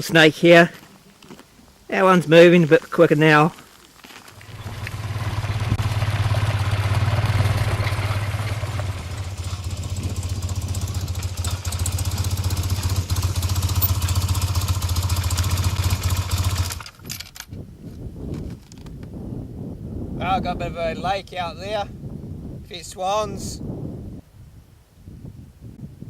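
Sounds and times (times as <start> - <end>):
road and wind noise: 0.0 - 26.0
motorcycle engine running: 4.4 - 17.0.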